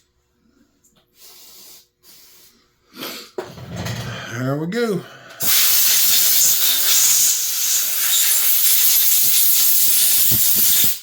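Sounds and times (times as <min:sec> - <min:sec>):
pressurized spray hissing: 0:05.4 - 0:11.0.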